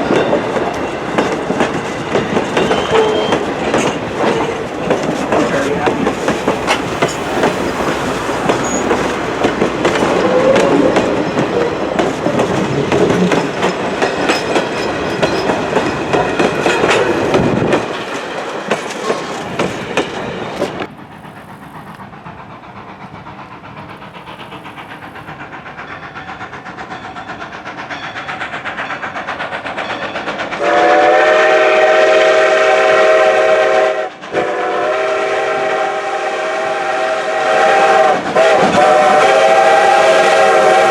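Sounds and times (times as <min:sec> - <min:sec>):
steam train wheels clicking: 0:00.0 - 0:40.9
steam whistle chime: 0:02.5 - 0:03.6, 0:08.6 - 0:09.3, 0:29.8 - 0:40.9.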